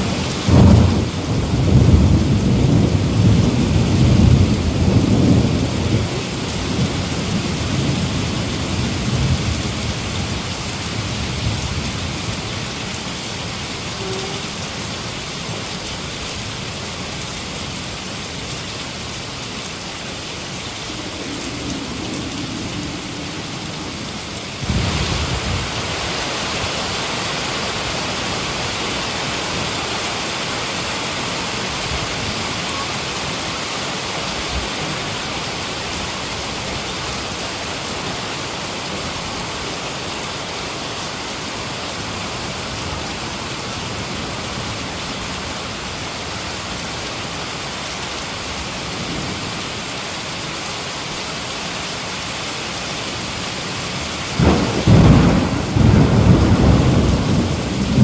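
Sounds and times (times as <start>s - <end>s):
heavy rain falling: 0.0s - 58.0s
thunder clap: 0.5s - 6.1s, 54.4s - 58.0s.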